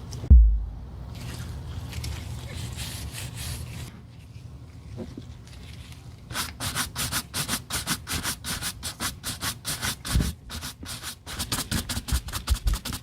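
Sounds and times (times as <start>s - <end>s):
dull thump: 0.3s - 0.8s.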